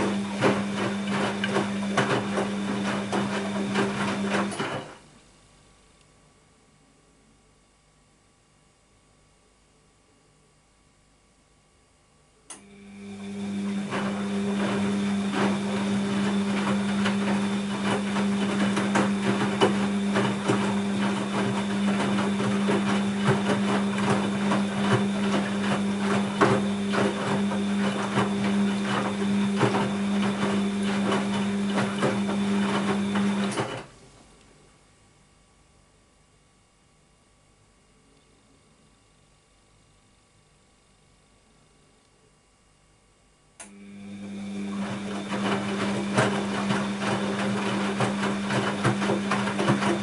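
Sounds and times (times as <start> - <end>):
washing machine humming: 0.0 - 5.2, 12.4 - 34.8, 43.6 - 50.0.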